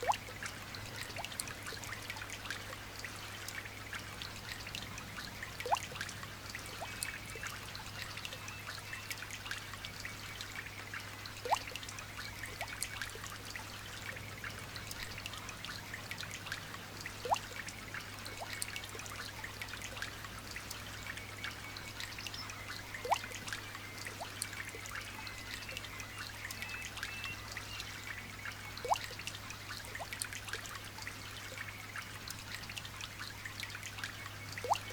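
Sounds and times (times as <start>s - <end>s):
light rain dripping: 0.0s - 34.9s
drop plinking into water: 28.8s - 29.2s, 34.6s - 34.9s.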